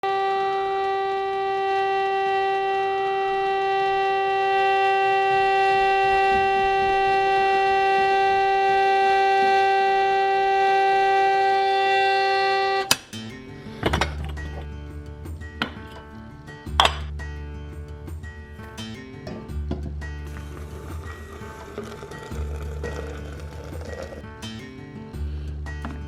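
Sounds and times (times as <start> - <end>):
steady horn-like tone: 0.0 - 13.0, 20.2 - 24.6.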